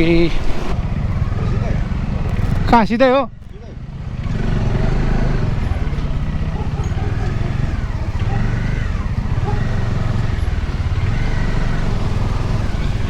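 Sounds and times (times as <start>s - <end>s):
motorcycle engine running: 0.0s - 13.0s
road and wind noise: 0.0s - 13.0s.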